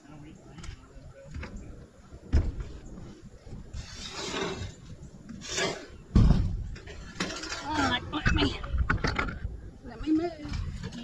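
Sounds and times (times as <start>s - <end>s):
rough scraping rustle: 3.2s - 9.4s.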